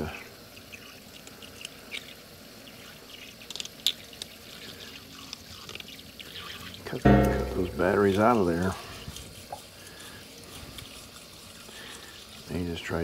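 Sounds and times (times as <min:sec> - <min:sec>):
water trickling in a sink: 0:04.0 - 0:07.0, 0:07.8 - 0:13.0.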